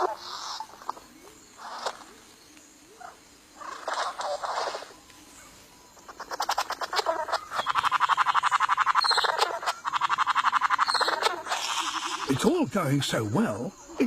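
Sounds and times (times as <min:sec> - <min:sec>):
bird rattling churr: 0:00.0 - 0:02.2, 0:03.0 - 0:05.0, 0:06.0 - 0:12.5.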